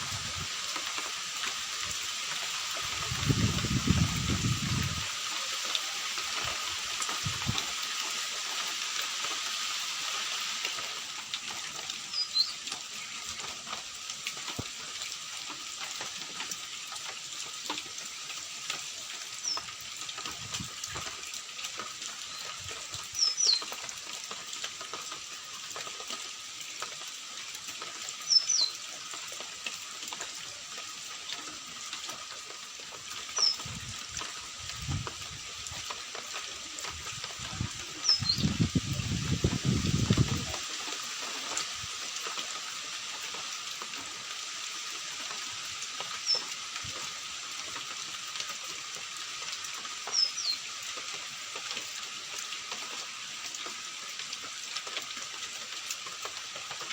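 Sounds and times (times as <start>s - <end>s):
rain or running water hiss: 0.0s - 56.9s
high bird chirps: 38.0s - 38.6s.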